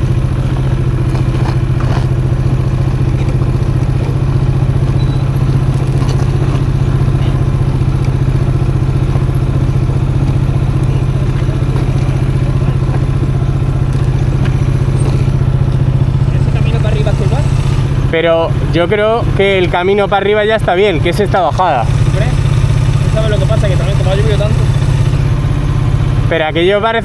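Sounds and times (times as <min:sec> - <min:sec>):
motorcycle engine running: 0:00.0 - 0:27.0
tyres clattering over gravel: 0:00.1 - 0:16.6.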